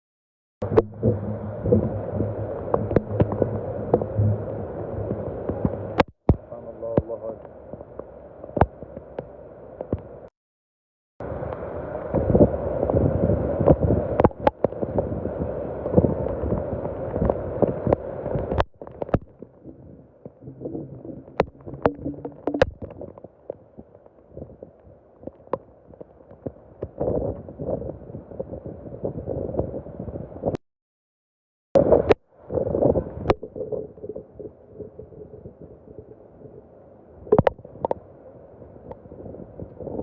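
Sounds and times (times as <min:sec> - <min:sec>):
gurgling running water: 0:00.6 - 0:06.0, 0:11.3 - 0:28.0.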